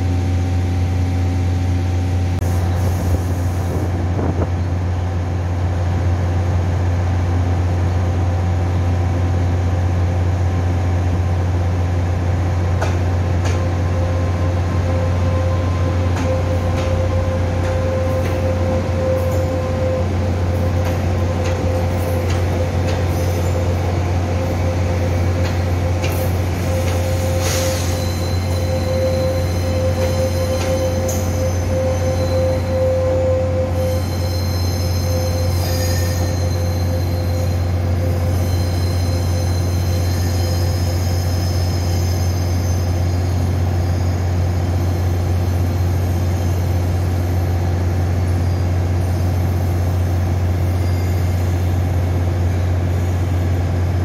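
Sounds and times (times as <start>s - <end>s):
train rumble with humming tone: 0.0s - 54.0s
high-pitched wheel squeal: 15.1s - 47.4s.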